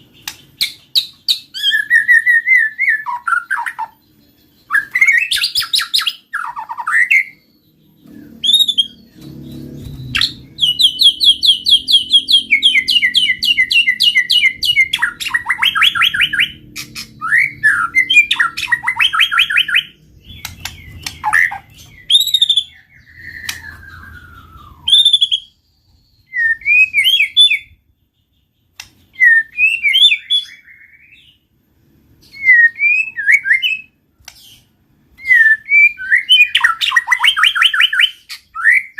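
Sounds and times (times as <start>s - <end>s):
songbird singing trills and whistles: 0.0s - 31.5s, 32.2s - 38.9s
faint low rumble: 7.5s - 26.3s.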